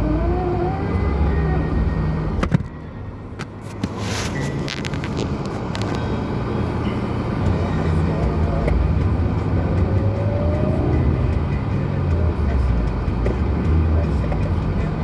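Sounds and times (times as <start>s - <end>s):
car engine droning under load: 0.0s - 15.0s.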